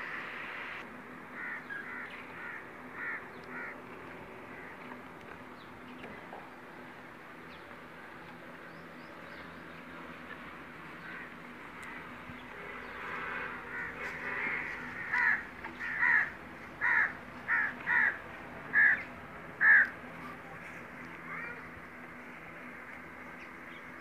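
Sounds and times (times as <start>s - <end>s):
bird calling: 11.0s - 20.4s.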